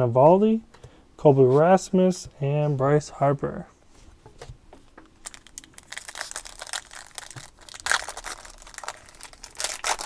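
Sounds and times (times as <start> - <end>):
foil wrapper crinkling: 5.2 - 10.0.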